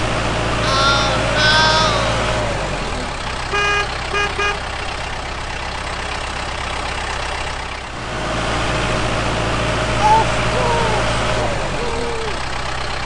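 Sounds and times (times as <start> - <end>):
vehicle engine running: 0.0 - 13.0
short horn beeps: 3.5 - 4.7.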